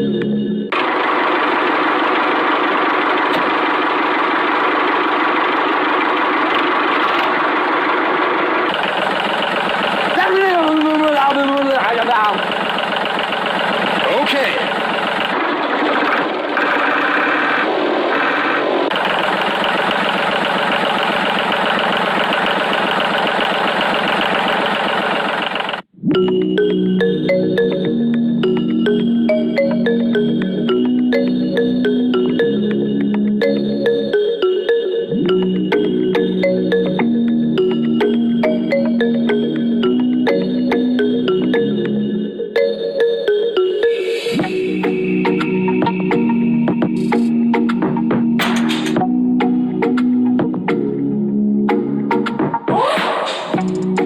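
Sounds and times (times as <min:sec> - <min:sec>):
small tractor engine running: 0:00.7 - 0:25.9.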